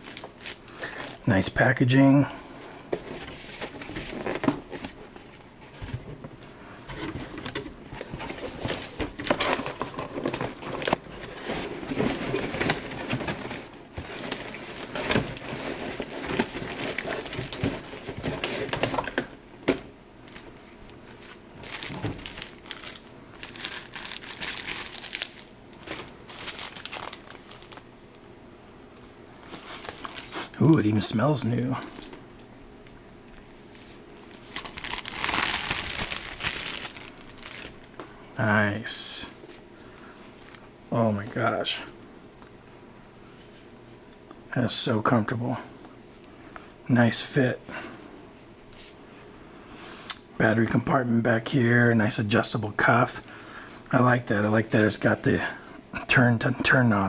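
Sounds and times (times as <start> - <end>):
plastic packaging crinkling: 0.0 - 1.4, 7.0 - 19.3, 20.2 - 28.2, 29.4 - 30.4, 34.2 - 38.0.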